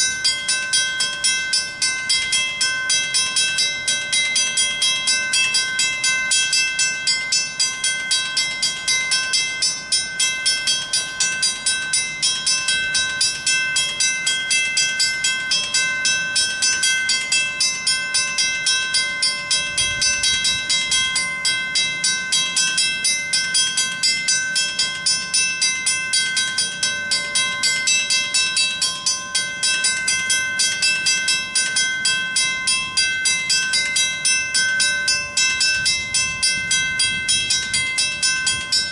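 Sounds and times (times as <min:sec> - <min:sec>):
railroad crossing bell ringing: 0:00.0 - 0:38.9.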